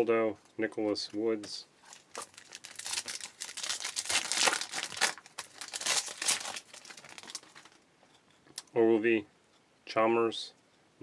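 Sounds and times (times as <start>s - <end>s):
wrapper tearing and crinkling: 1.8s - 7.8s.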